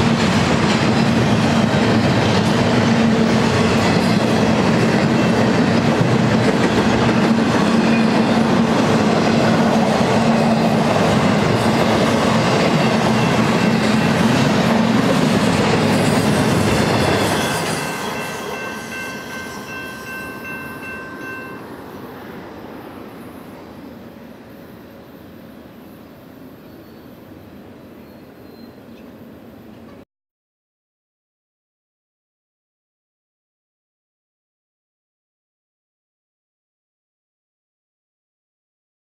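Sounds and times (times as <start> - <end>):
freight train wheels rumbling: 0.0 - 30.0
steady high ringing: 16.0 - 22.3.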